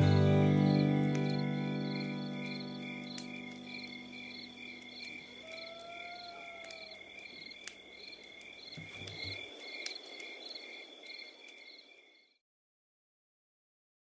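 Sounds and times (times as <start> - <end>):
crickets chirping: 0.0 - 12.4
faint clicks: 4.8 - 11.7.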